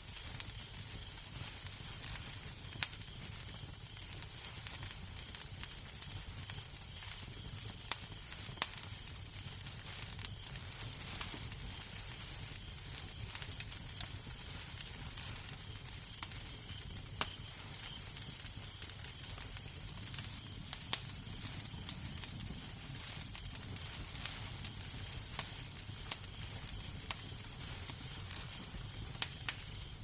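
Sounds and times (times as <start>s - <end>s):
wood fire crackling: 0.0s - 30.0s
sharp fire pops: 0.1s - 30.0s.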